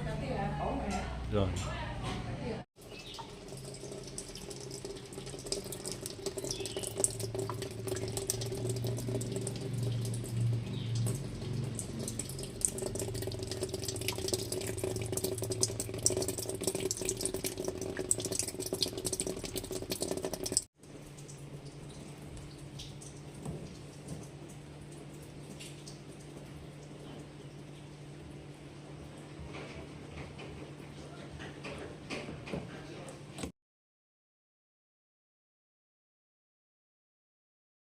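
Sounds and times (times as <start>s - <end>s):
low steady hum: 3.2s - 31.2s.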